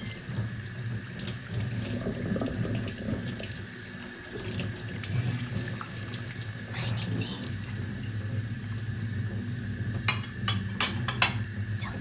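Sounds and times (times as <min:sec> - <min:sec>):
tap water running into sink: 0:00.0 - 0:06.7
dishes clinking: 0:10.1 - 0:11.5.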